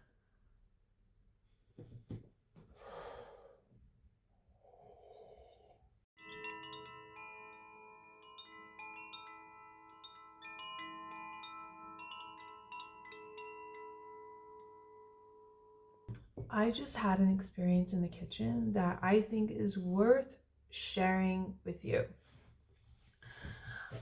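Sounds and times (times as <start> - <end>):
faint knocks and rustles: 1.7 - 2.8
soft chime music: 6.2 - 16.1.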